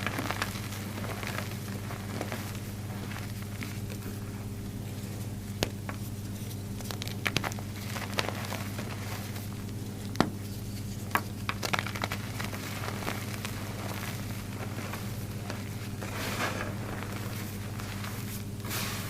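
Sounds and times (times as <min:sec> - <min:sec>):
steady low hum: 0:00.0 - 0:19.0
chalk block crunching: 0:05.6 - 0:19.0.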